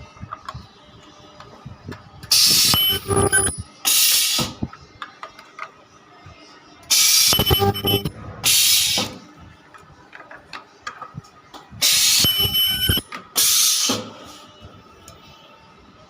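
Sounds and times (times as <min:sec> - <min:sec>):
welding machine hissing bursts: 0:13.4 - 0:14.0.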